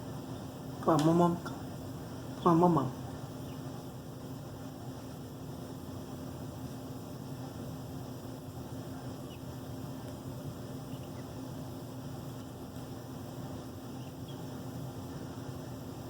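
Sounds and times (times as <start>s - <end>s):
background hum and hiss: 0.0s - 16.0s
baby birds chirping: 2.1s - 6.4s, 7.5s - 16.0s.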